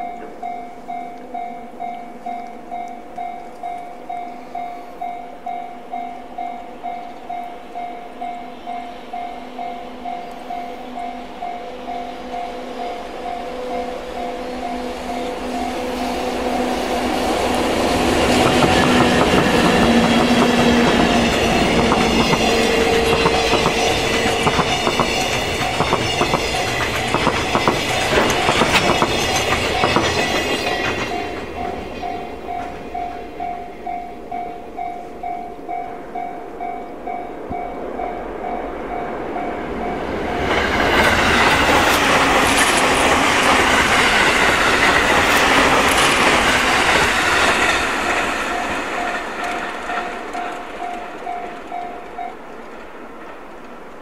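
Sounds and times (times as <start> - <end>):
level-crossing bell ringing: 0.0 - 40.6, 42.4 - 52.4
express train rushing past: 0.0 - 54.0
freight train rolling past: 0.0 - 54.0
wheels clicking over rail joints: 17.0 - 33.5, 40.4 - 54.0.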